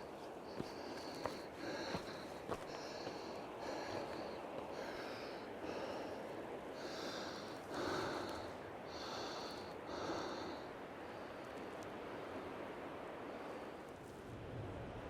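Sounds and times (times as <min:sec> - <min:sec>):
heavy breathing: 0:00.0 - 0:11.4.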